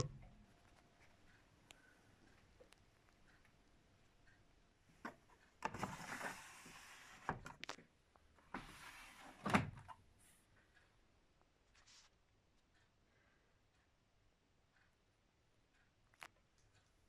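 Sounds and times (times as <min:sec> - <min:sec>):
sliding or rustling: 0:05.7 - 0:07.5.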